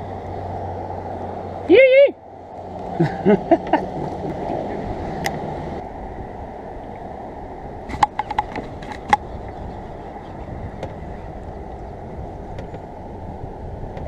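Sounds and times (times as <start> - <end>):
rushing wind and water: 0.0 - 14.0
sharp clicks and knocks: 7.9 - 9.2.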